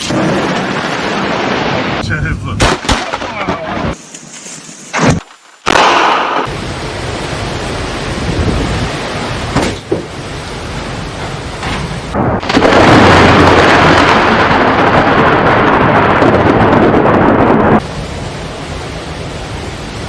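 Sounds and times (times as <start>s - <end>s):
heavy rain: 0.0s - 4.0s, 5.6s - 20.0s
rumbling thunder: 11.6s - 17.8s.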